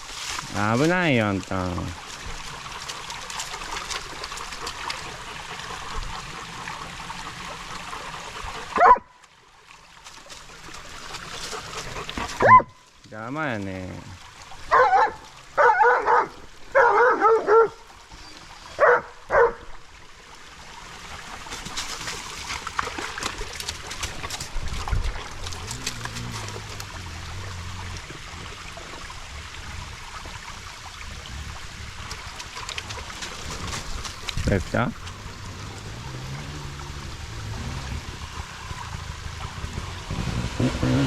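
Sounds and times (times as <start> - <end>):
dog barking: 8.8 - 9.1, 12.4 - 12.8, 14.7 - 17.8, 18.8 - 19.7.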